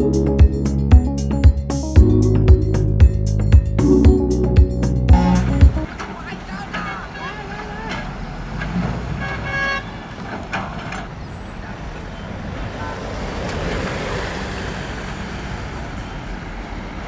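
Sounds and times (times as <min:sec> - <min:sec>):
diesel construction machinery rumbling: 0:00.0 - 0:17.0
brief pitched tone: 0:05.1 - 0:05.9.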